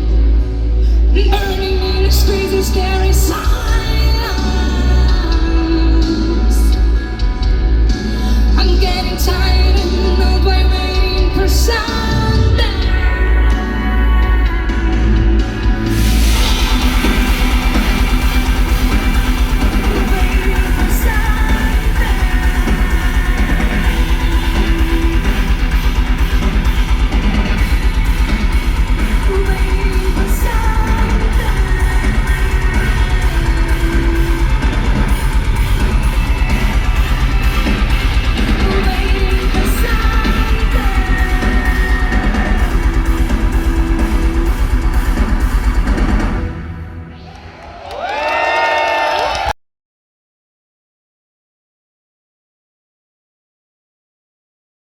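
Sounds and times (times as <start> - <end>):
live metal band playing: 0.0 - 47.7
electric guitars: 0.0 - 49.5
rapid bass drum beats: 14.2 - 46.6.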